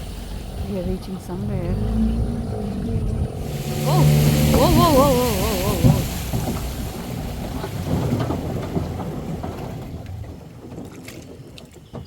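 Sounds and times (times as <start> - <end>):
boat pushing through vegetation: 0.0 - 12.0
crackles: 3.4 - 11.8.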